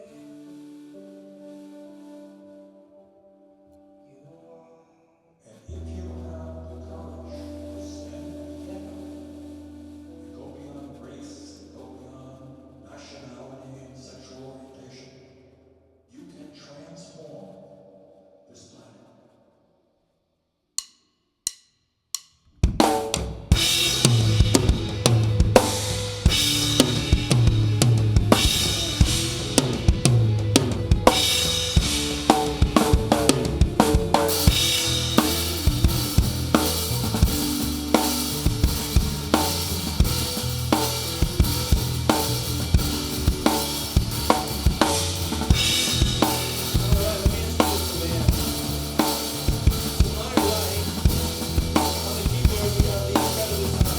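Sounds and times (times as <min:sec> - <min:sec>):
sustained bass notes: 0:05.7 - 0:13.2, 0:23.5 - 0:53.9
rock band playing: 0:06.8 - 0:10.9, 0:22.8 - 0:53.9
bass drum: 0:22.6 - 0:53.9
cymbals: 0:23.5 - 0:53.9.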